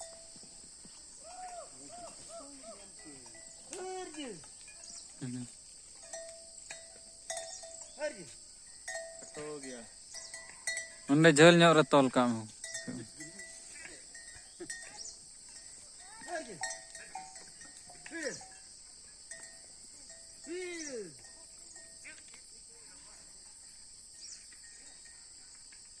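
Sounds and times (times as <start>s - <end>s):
livestock bells clinking: 0.0s - 25.4s
high insect drone: 0.0s - 26.0s.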